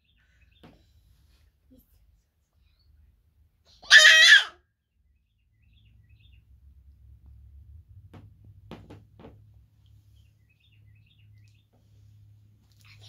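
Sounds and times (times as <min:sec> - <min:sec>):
bird chirping: 0:04.8 - 0:06.6, 0:10.1 - 0:11.8.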